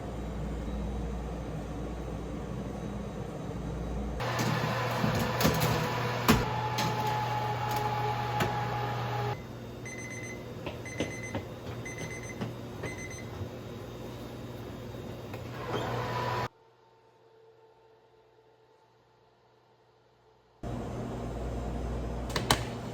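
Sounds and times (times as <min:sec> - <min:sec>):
machine hum: 0:00.0 - 0:16.5.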